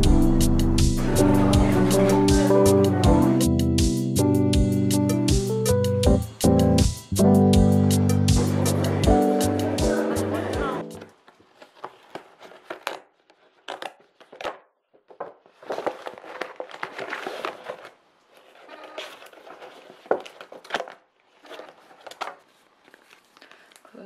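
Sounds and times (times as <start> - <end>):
packaging crinkling and rustling: 11.0 - 23.9.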